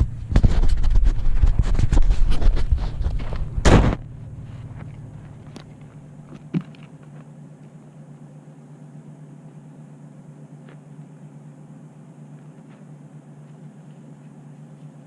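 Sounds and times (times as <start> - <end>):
low engine hum: 0.0 - 15.0
loud rustle or knock: 0.3 - 4.0.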